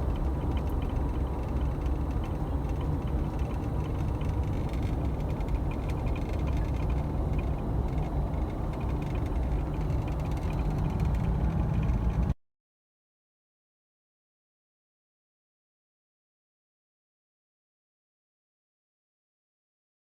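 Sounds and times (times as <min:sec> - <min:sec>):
vehicle rumbling on dirt track: 0:00.0 - 0:12.4.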